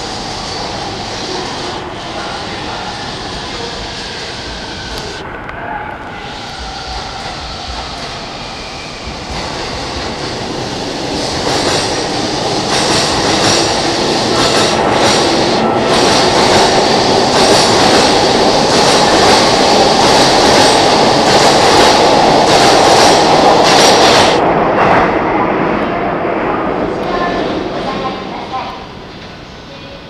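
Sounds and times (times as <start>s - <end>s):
electric train pulling out: 6.0s - 24.4s
train wheels clacking over rail joints: 12.6s - 24.4s.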